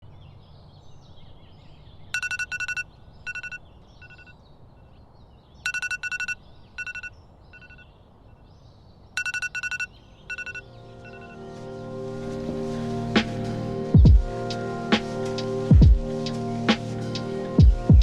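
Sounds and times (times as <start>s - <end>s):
birds chirping faintly: 0.0s - 18.0s
electronic alarm beeping: 2.2s - 4.3s, 5.7s - 7.8s, 9.2s - 11.4s.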